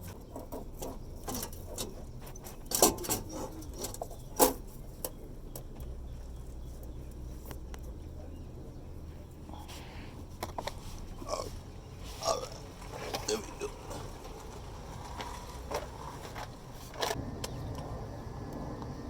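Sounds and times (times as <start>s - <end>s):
hand tools clicking on metal: 0.0s - 5.9s.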